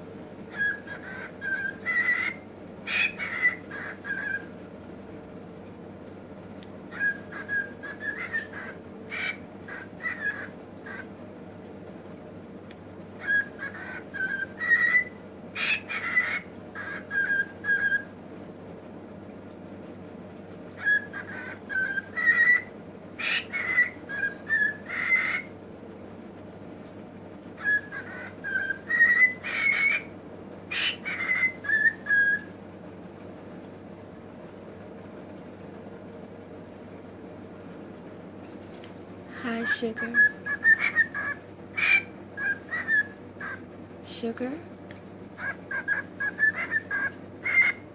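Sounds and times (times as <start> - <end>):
pet bird whistling: 0.5 - 4.6, 6.9 - 11.1, 13.2 - 18.2, 20.8 - 25.6, 27.6 - 30.1, 30.7 - 32.6, 39.5 - 43.6, 45.4 - 47.9.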